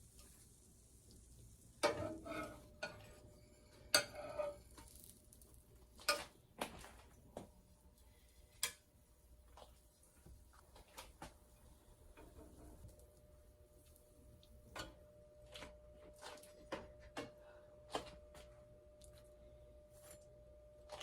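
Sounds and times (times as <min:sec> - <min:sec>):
utensil clinking against cookware: 0:03.9 - 0:04.6.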